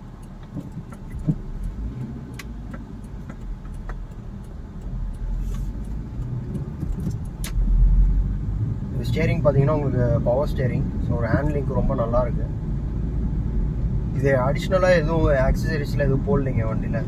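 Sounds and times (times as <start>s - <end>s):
light clicks and rattles: 0.0s - 7.7s
car engine and road noise: 0.0s - 17.0s.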